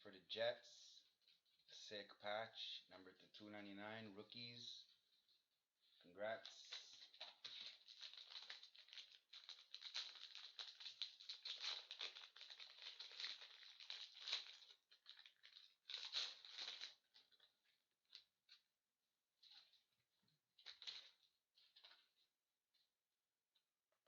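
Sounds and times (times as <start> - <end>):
card wrapper crinkling and rustling: 6.4 - 18.7, 19.4 - 22.2.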